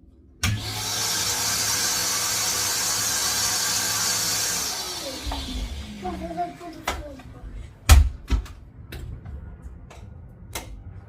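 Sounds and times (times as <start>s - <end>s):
vacuum cleaner motor running: 0.4s - 6.7s.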